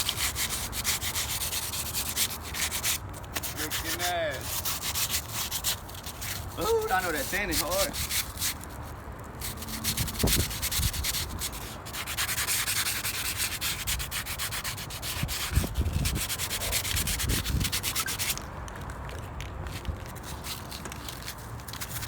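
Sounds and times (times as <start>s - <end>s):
hand sanding strokes: 0.0s - 18.4s.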